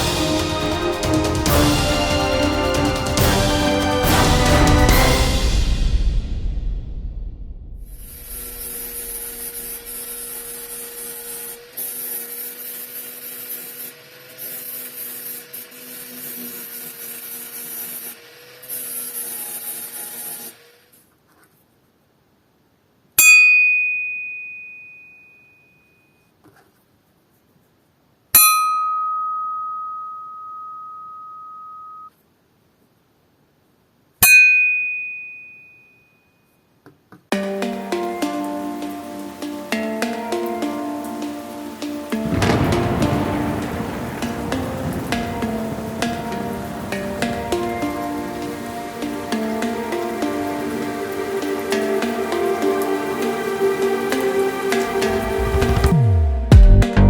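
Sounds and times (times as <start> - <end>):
electric power tool running: 8.1 - 20.9
axe head struck ringing: 28.4 - 30.8, 34.2 - 35.8.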